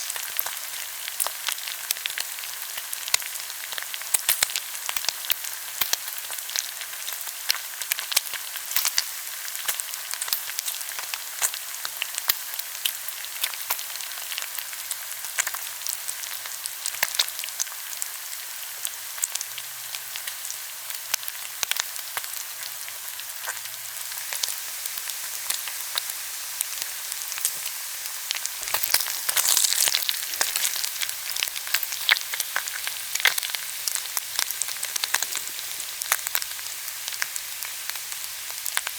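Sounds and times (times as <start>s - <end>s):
pork belly sizzling on grill pan: 0.0s - 38.9s
fat popping and crackling: 28.6s - 33.5s.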